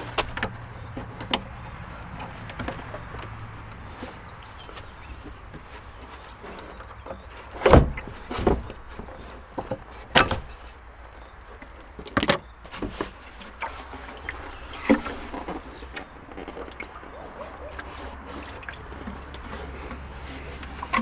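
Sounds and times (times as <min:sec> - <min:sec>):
sharp knocks and clunks: 0:00.0 - 0:10.8.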